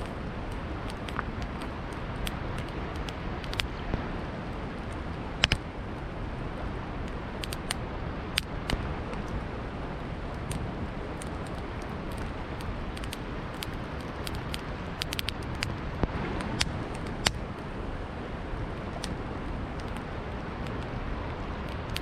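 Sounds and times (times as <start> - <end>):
wood fire crackling and popping: 0.0 - 5.7, 10.1 - 17.7, 18.8 - 22.0.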